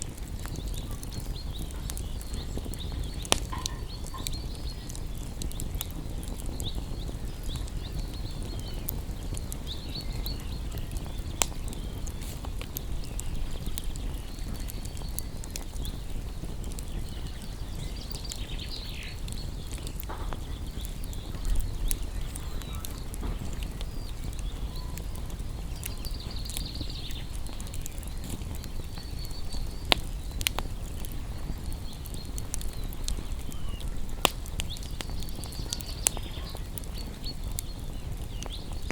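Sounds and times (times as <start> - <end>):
campfire flame rushing: 0.0 - 38.9
fire crackling and popping: 0.0 - 38.9.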